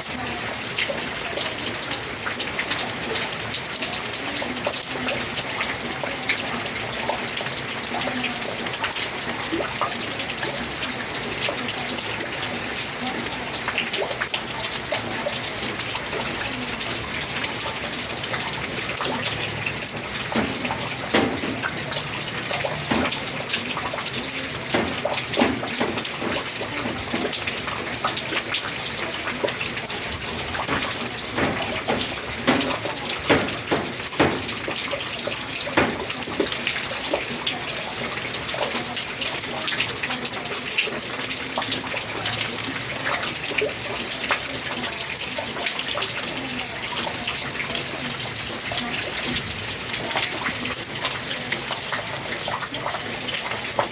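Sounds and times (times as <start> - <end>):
heavy rain pouring: 0.0 - 53.9
water gushing and splashing: 6.8 - 43.9.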